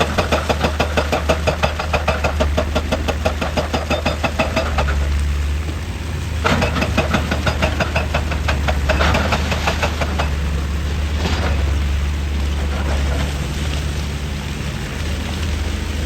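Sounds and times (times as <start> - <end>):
rapid metallic clattering: 0.0 - 5.1, 6.4 - 13.6
heavy diesel machinery running: 0.0 - 16.0.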